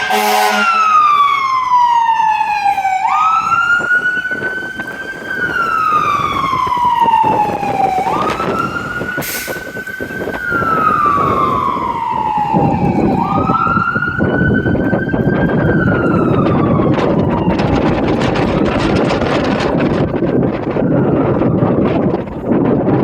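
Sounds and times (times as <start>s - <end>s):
fire engine siren wailing: 0.0s - 23.0s
truck engine and road rumble: 0.0s - 23.0s.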